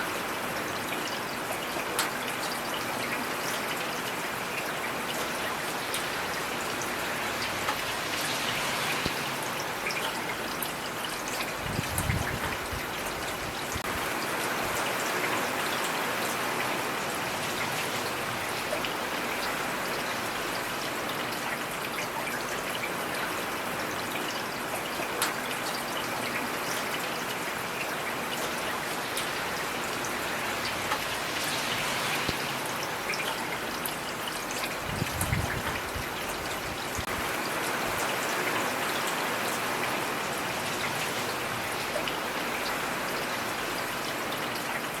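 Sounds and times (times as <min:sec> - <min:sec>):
heavy rain falling: 0:00.0 - 0:45.0
raindrop ticks: 0:07.4 - 0:08.1, 0:25.2 - 0:25.4, 0:30.6 - 0:31.1.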